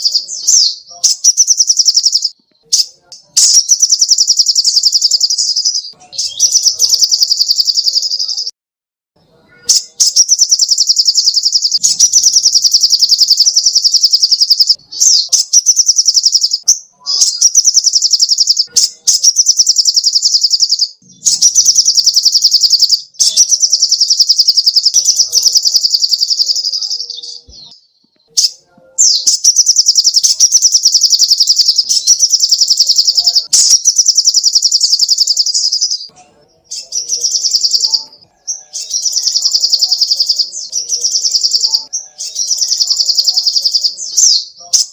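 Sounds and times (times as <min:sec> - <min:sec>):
sunbird singing rapid trills: 0:00.0 - 0:02.4, 0:03.4 - 0:08.5, 0:09.7 - 0:27.5, 0:29.1 - 0:36.1, 0:36.7 - 0:44.9.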